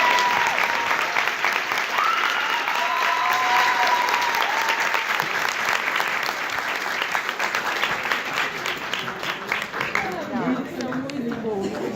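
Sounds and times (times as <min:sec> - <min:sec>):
long drawn-out cheer: 0:00.0 - 0:08.7
audience applauding: 0:00.0 - 0:11.9.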